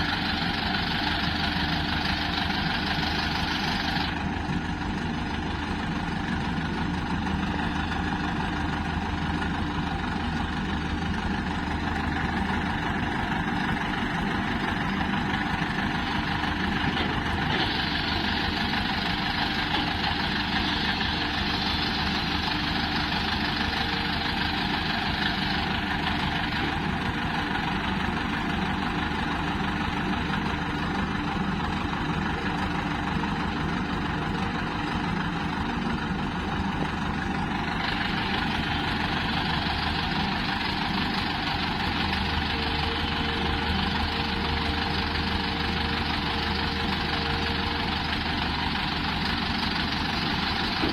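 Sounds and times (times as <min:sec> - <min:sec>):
heavy diesel engines running: 0:00.0 - 0:50.9.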